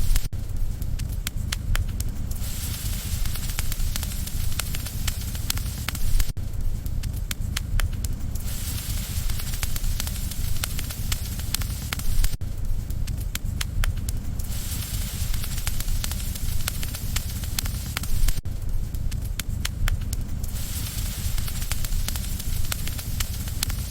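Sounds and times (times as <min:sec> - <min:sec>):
bonfire crackling and popping: 0:00.0 - 0:23.9
fire rumble and hiss: 0:00.0 - 0:23.9.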